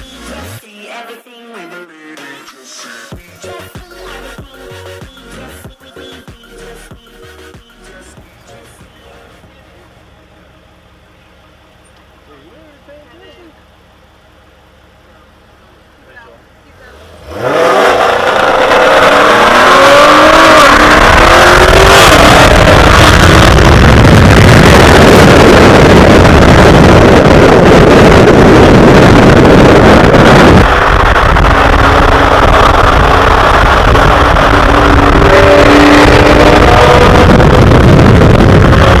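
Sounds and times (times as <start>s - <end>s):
car engine accelerating hard: 9.3s - 39.0s.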